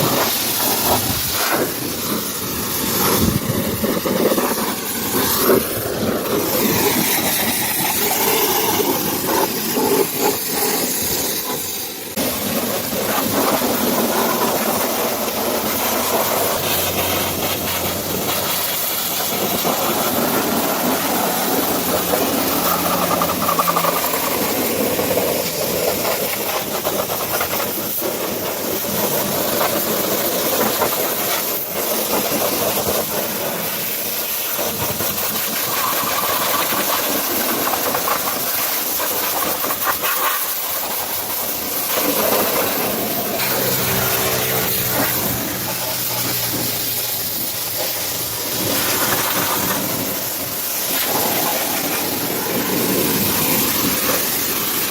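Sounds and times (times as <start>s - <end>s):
pressure washer jet spraying: 0.0s - 54.9s
machine running: 15.0s - 25.8s, 42.1s - 54.8s.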